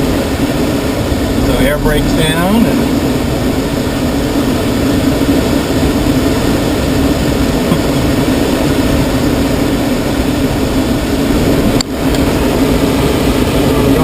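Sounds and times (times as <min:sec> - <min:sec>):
low hum: 0:00.0 - 0:07.6
air rushing over cockpit: 0:00.0 - 0:14.0.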